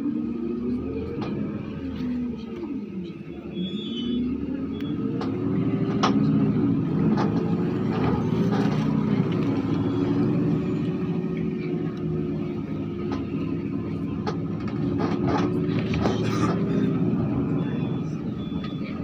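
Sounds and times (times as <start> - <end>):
car engine from inside cabin: 4.2 - 19.0.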